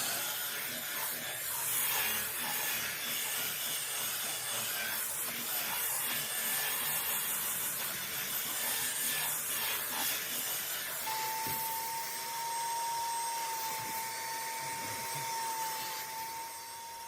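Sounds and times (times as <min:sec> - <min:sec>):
extractor suction motor hissing: 0:00.0 - 0:17.0
thin steady whistle: 0:11.0 - 0:17.0.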